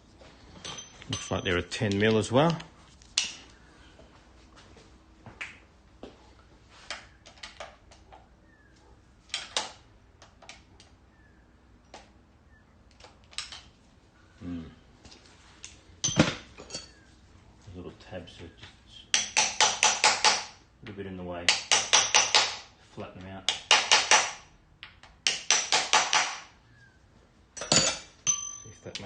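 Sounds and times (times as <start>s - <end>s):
metallic clicks of hand tools: 19.1s - 20.5s.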